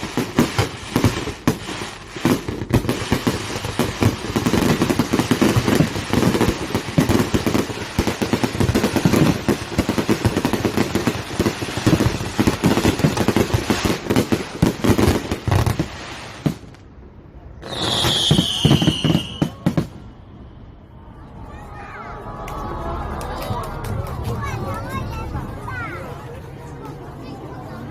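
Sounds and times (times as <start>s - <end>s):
fireworks booming and crackling: 0.0s - 17.0s, 17.6s - 20.2s
high whistling tone: 17.6s - 19.6s.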